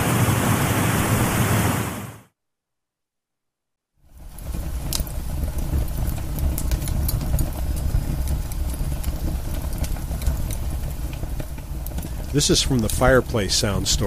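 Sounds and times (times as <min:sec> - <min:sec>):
fire crackling and popping: 0:04.0 - 0:14.0.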